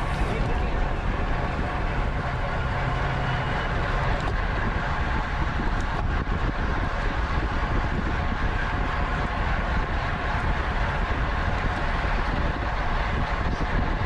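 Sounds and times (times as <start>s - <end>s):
wind rushing: 0.0s - 14.0s.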